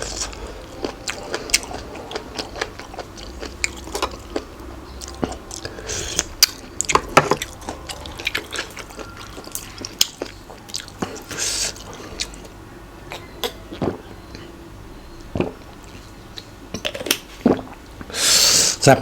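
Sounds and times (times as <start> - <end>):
person chewing crunchy food: 0.0 - 14.5.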